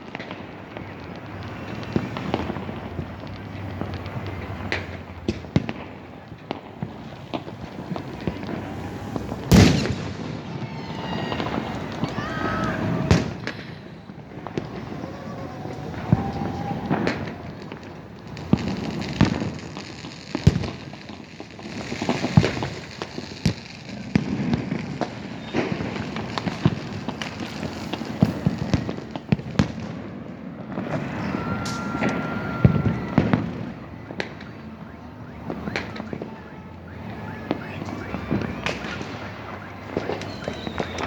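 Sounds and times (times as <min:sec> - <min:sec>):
fireworks bangs: 0:00.0 - 0:41.0
fireworks crackling: 0:00.0 - 0:41.0
steady whistle: 0:07.8 - 0:17.8, 0:30.8 - 0:41.0.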